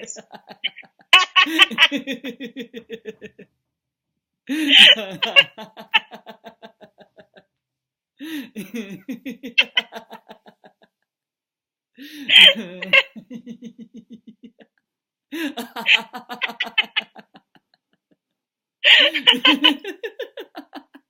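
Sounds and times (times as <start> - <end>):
hearty laughing: 0.0 - 3.5, 4.5 - 7.5, 8.2 - 11.0, 12.1 - 14.7, 15.3 - 18.2, 18.8 - 21.0.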